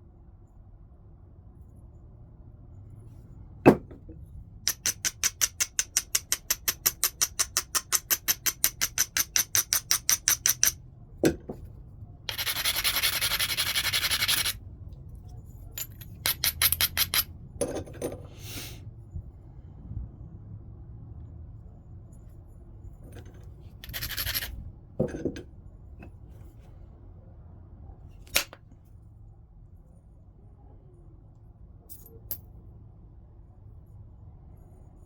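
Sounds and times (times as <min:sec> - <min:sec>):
hammer knocking on stone: 0:03.7 - 0:04.1
scraping strokes on stone: 0:12.3 - 0:14.6, 0:23.8 - 0:24.5
stone grinding: 0:12.3 - 0:14.6, 0:15.8 - 0:17.8, 0:23.1 - 0:25.4.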